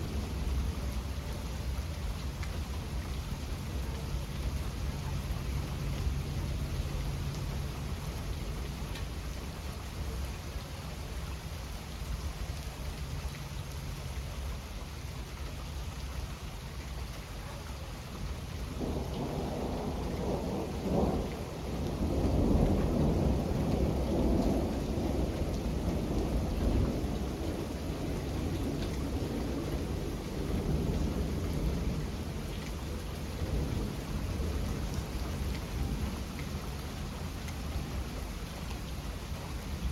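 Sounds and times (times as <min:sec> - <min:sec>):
steady rain: 0:00.0 - 0:39.9
rolling thunder: 0:18.7 - 0:36.8.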